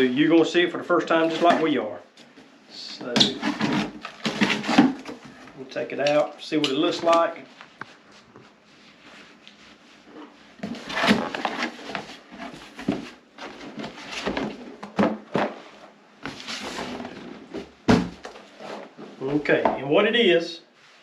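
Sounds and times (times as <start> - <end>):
cardboard packaging rustling: 3.2 - 5.6, 10.6 - 19.0.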